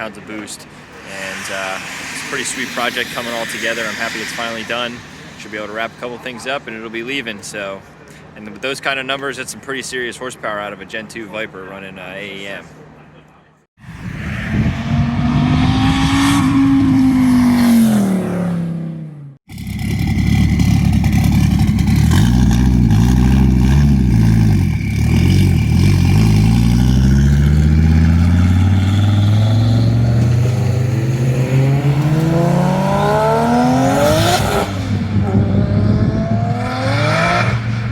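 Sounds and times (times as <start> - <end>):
car engine revving: 0.4 - 6.6, 14.2 - 37.9.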